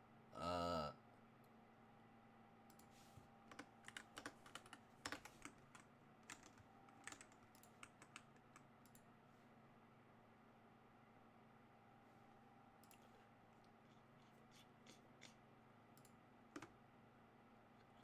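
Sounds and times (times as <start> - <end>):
faint keyboard typing: 2.7 - 9.1, 12.8 - 16.8.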